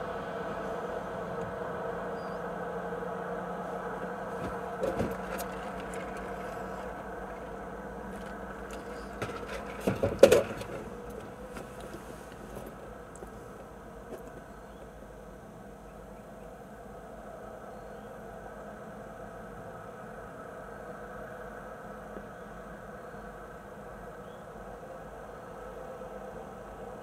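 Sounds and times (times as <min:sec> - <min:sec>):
car engine idling: 0:02.6 - 0:14.8
knocks: 0:04.4 - 0:07.5, 0:08.1 - 0:12.0.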